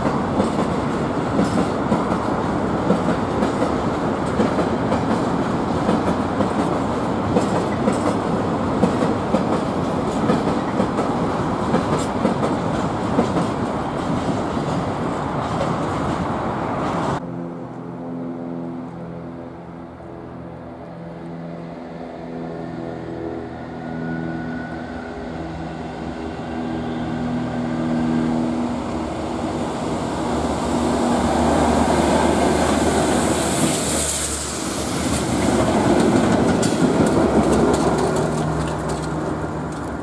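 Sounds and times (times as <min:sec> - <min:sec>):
pulsing locomotive engine: 0:00.0 - 0:40.0
rumble of passing train: 0:00.0 - 0:40.0
hiss: 0:32.8 - 0:35.5
wheels clattering over rail joints: 0:33.6 - 0:40.0.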